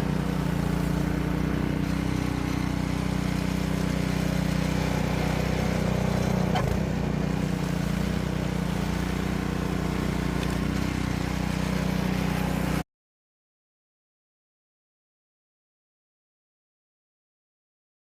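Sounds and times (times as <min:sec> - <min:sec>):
engine running steadily: 0:00.0 - 0:12.8.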